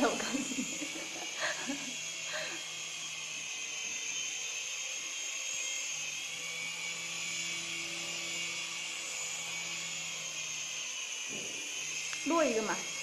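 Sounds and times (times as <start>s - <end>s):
toy airplane motors whirring: 0.0s - 13.0s.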